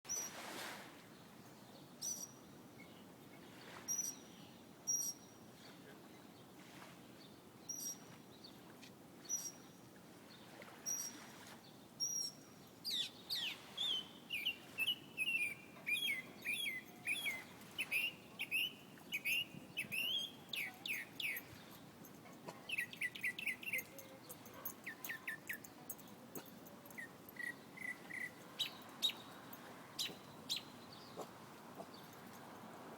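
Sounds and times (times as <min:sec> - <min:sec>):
bird chirping and trilling: 0:12.9 - 0:21.6, 0:22.7 - 0:24.0.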